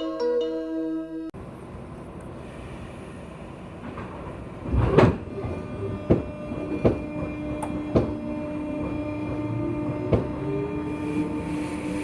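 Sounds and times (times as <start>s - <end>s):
electric train interior noise: 0.0s - 12.0s.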